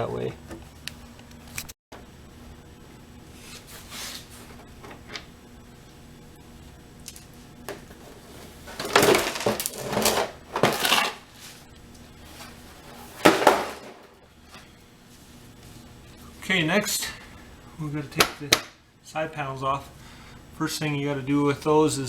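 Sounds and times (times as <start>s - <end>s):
plastic clattering and knocking: 8.7s - 11.2s, 13.2s - 14.1s.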